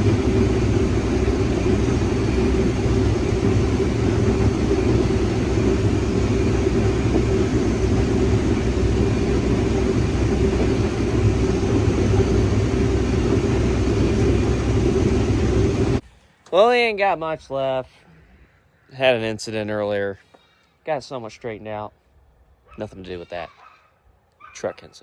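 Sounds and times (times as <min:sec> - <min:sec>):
harvest machinery engine drone: 0:00.0 - 0:16.0.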